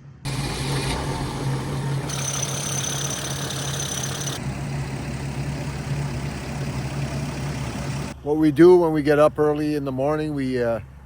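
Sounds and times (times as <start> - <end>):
diesel engine running: 0.0 - 8.2.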